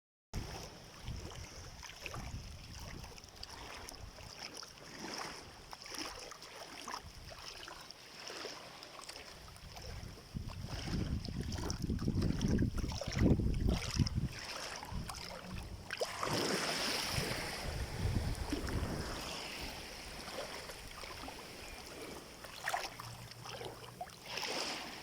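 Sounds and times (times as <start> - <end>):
wind buffeting microphone: 0.4 - 3.2, 9.6 - 15.9, 16.8 - 22.3
sea water washing at shore: 0.4 - 25.0.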